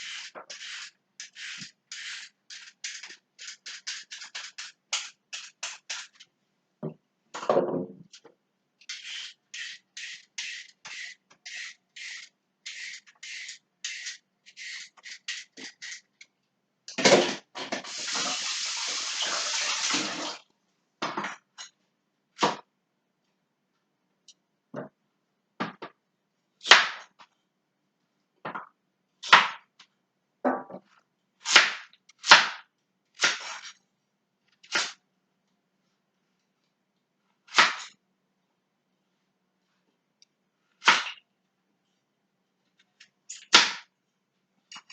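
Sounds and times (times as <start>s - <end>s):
vegetable scraping strokes: 0.0s - 4.8s, 8.9s - 16.0s
running tap water: 17.8s - 20.4s.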